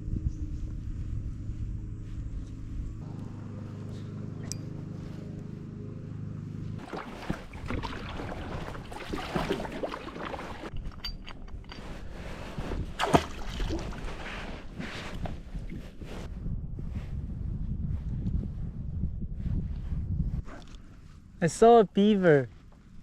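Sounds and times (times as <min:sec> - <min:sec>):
wind on microphone: 0:00.0 - 0:03.1, 0:07.4 - 0:21.4
steady low hum: 0:00.0 - 0:10.0
water splashing around a kayak: 0:06.8 - 0:10.9, 0:12.2 - 0:16.1.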